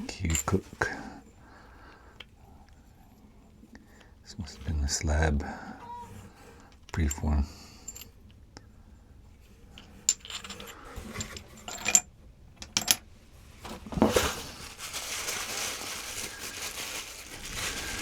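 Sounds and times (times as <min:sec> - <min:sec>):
packing wrap crinkling: 0:13.8 - 0:18.0.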